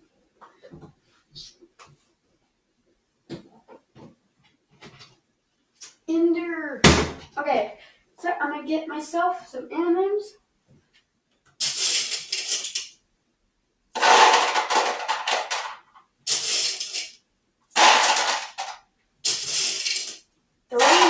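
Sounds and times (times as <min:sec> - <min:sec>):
candies rattling into container: 0:11.6 - 0:12.9, 0:14.0 - 0:17.2, 0:17.8 - 0:20.2, 0:20.8 - 0:21.0.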